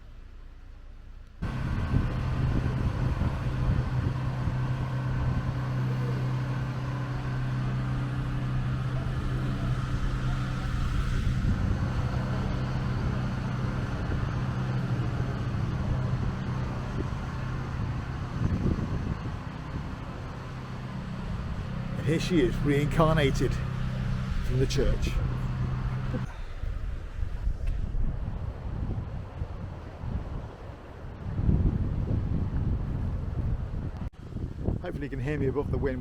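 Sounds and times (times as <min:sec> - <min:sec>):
vehicle engine running: 0:00.0 - 0:35.8
road noise: 0:00.0 - 0:36.0.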